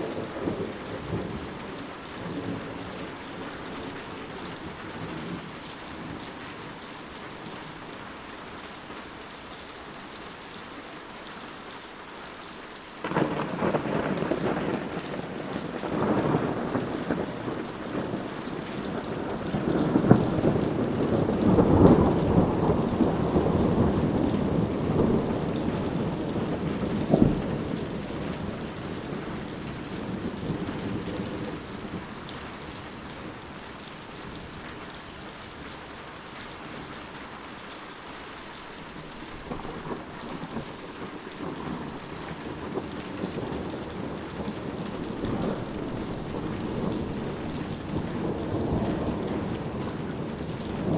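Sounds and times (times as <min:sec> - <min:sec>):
rolling thunder: 0:00.0 - 0:06.2, 0:13.0 - 0:33.4, 0:39.4 - 0:50.9
steady rain: 0:00.0 - 0:50.9.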